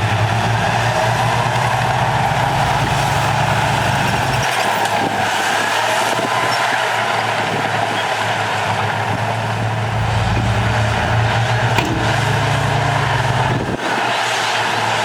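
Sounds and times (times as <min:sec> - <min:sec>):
heavy machinery diesel engine running: 0:06.9 - 0:15.0.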